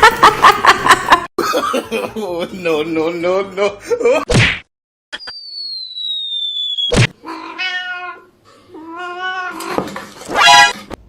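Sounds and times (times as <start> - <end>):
high whistling tone: 5.2 - 7.0
cat meowing: 7.2 - 10.8.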